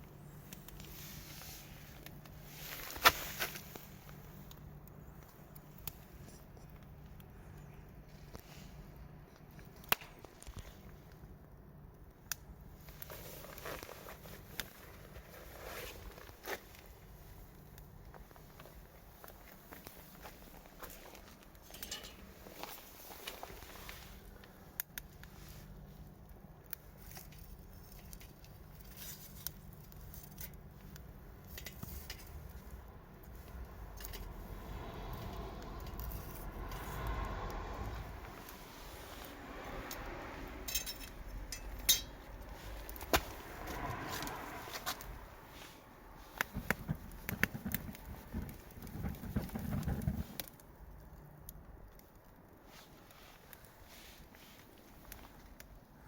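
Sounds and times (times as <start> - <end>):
campfire crackling hiss: 0.3 - 6.2, 22.2 - 27.2, 30.7 - 40.7, 41.3 - 55.7
wood popping in campfire: 9.4 - 11.3, 16.0 - 40.2, 41.1 - 45.3, 46.2 - 52.4
low rumble: 32.8 - 50.4
sharp pops and clicks: 46.3 - 50.6.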